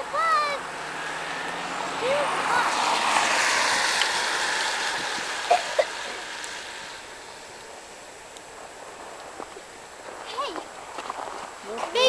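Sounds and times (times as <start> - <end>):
bus driving past: 0.0 - 8.8.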